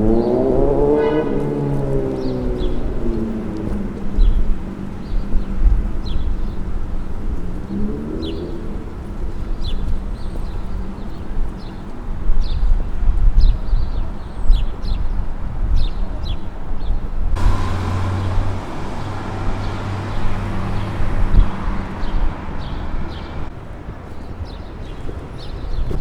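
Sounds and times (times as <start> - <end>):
low traffic rumble: 0.0 - 12.2, 17.4 - 23.6
large vehicle engine hum: 17.4 - 23.5
small birds chirping: 17.4 - 23.5.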